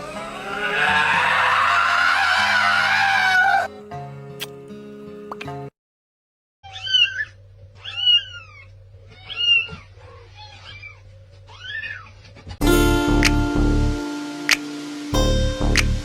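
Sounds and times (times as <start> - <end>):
cat meowing: 6.6 - 12.3.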